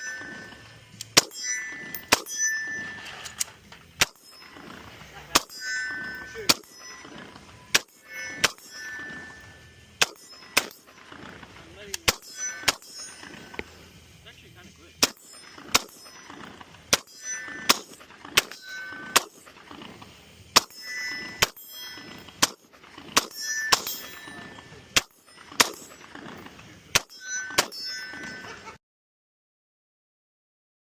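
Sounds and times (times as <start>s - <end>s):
short metallic ring: 0.0s - 11.4s, 12.0s - 14.0s, 15.0s - 19.8s, 20.5s - 28.8s
single gunshots: 12.0s - 12.9s, 15.0s - 16.0s.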